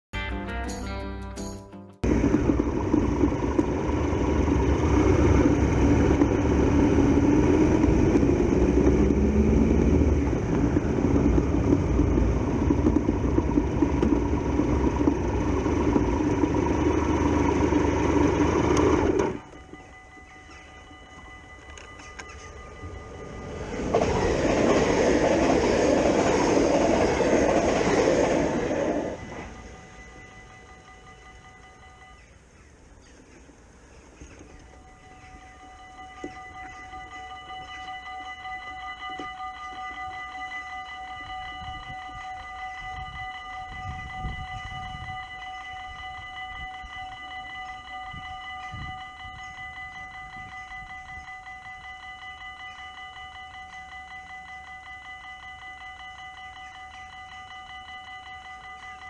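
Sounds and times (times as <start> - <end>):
train wheels rushing on rails: 2.1 - 32.2
clickety-clack of train wheels: 5.2 - 32.2
steady tones: 10.1 - 32.5.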